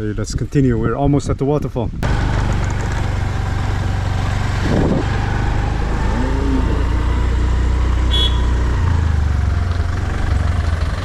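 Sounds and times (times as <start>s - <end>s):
motorbike engine running: 2.0s - 11.0s.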